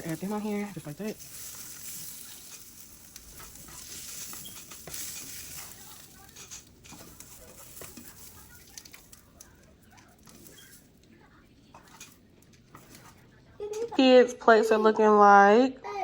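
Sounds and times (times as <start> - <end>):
food sizzling in a pan: 0.0 - 11.0
cooking utensil clicks and scrapes: 0.0 - 14.0.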